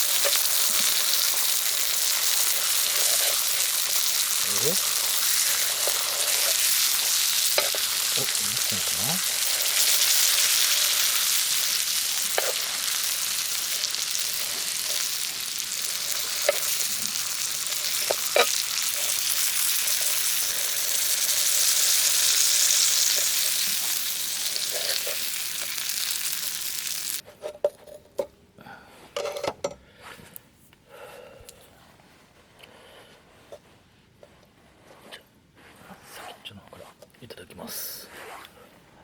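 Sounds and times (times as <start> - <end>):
food sizzling in a pan: 0.0 - 27.2.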